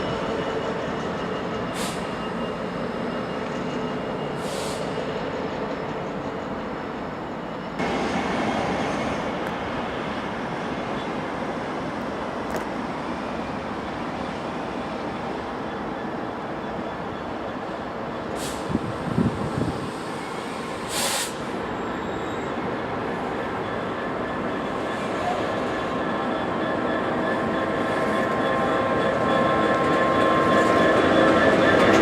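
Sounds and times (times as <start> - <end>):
train running hum: 0.0 - 32.0.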